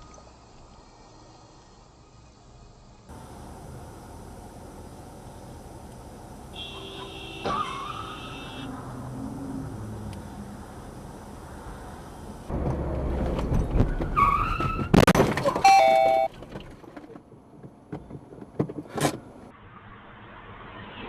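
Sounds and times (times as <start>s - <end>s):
traffic road and engine noise: 0.0s - 21.0s
two-note car horn blast: 6.5s - 8.7s, 15.7s - 16.3s
short horn-like tone: 15.6s - 16.3s.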